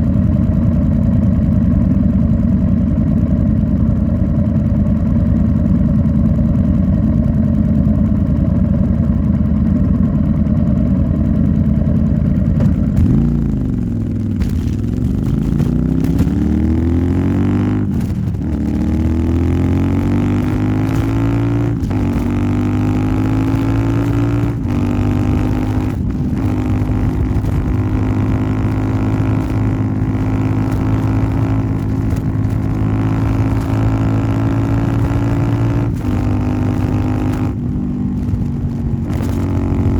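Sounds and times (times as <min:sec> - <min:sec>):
motorcycle engine: 0:00.0 - 0:39.9
gear shifts: 0:10.5 - 0:39.9.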